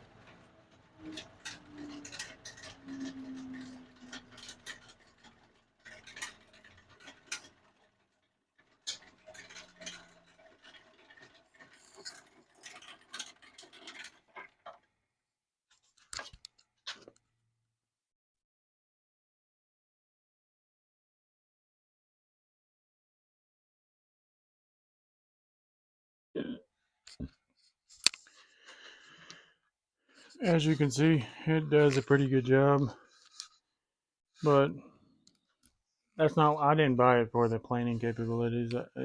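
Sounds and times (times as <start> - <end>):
clicks and knocks of handling: 0.1 - 14.9, 15.7 - 17.2, 27.1 - 29.4
planer cutterhead coasting down: 30.3 - 33.1, 36.2 - 39.0.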